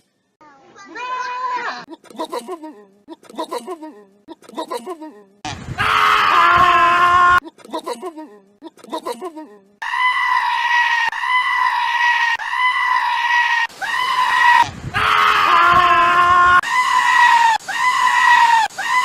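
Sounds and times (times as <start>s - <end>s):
goat screaming: 9.8s - 19.0s.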